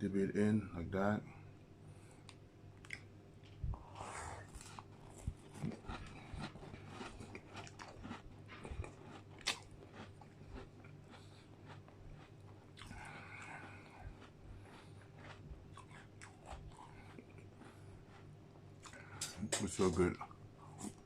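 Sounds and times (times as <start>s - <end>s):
wet chewing: 2.3s - 19.4s
biscuit crunching: 2.8s - 19.1s.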